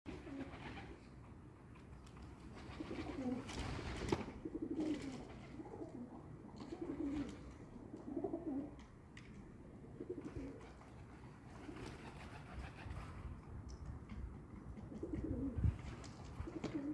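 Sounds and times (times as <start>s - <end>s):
pigeons cooing: 0.1s - 1.1s, 2.6s - 3.6s, 4.2s - 8.8s, 9.8s - 10.9s, 14.7s - 15.8s, 16.4s - 16.9s.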